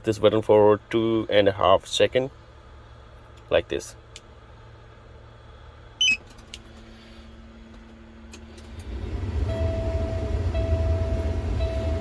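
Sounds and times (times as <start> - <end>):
truck engine rumble: 0.0 - 12.0
dashboard warning beeps: 6.0 - 6.4, 9.4 - 12.0.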